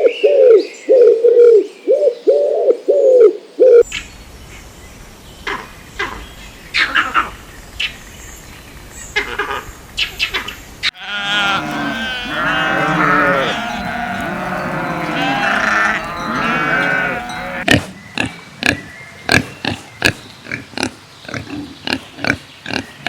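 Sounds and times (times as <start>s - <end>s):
farm animals bleating: 10.9s - 17.6s
short sharp animal calls: 11.0s - 17.6s.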